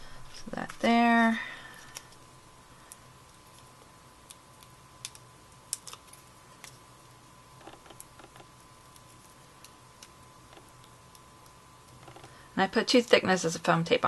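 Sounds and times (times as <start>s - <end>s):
paper clicks and taps: 7.6s - 11.2s, 11.9s - 12.4s.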